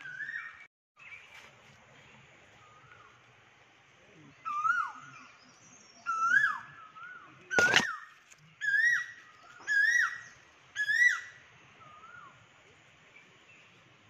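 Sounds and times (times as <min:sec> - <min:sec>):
sharp knock: 0:07.6 - 0:07.9.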